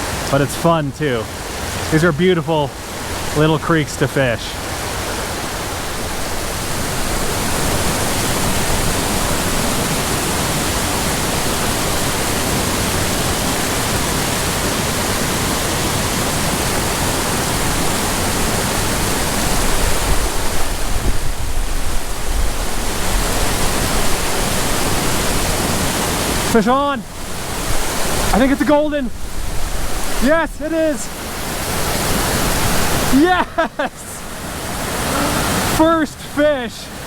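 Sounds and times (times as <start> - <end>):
rushing white water: 0.0 - 37.0.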